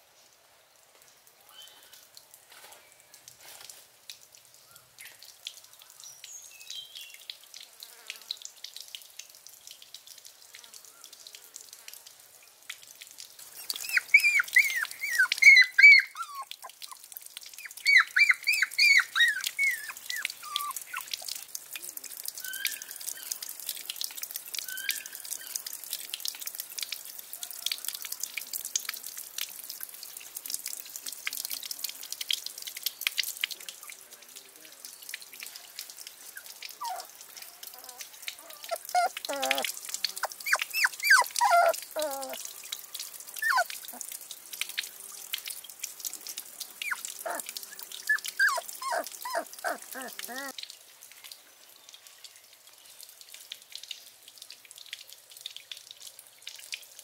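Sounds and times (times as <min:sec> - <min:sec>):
water dripping and trickling: 0:00.0 - 0:57.0
bird chirping: 0:17.6 - 0:21.1.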